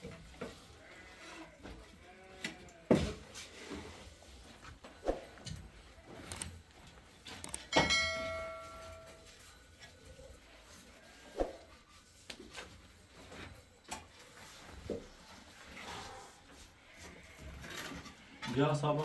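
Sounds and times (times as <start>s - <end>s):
knocks and clatter of objects: 2.9s - 4.0s, 4.6s - 9.9s.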